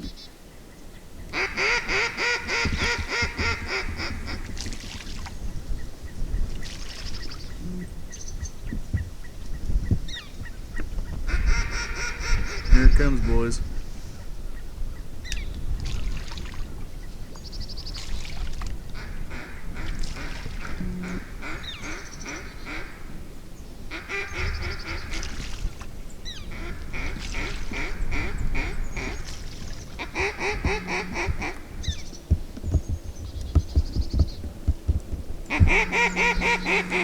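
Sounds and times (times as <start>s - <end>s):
duck quacking rapidly: 30.0s - 31.6s, 35.5s - 37.0s.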